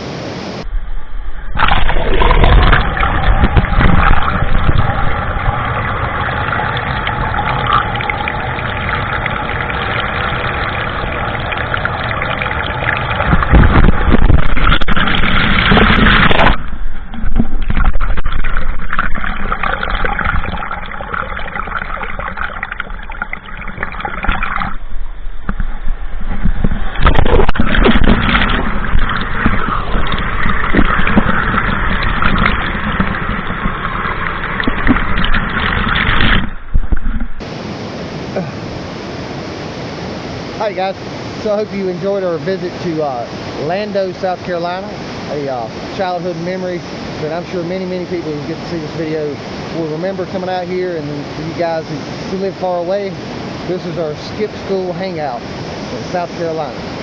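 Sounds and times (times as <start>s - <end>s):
waterfall roaring: 0.0s - 0.7s, 1.6s - 16.6s, 37.4s - 57.0s.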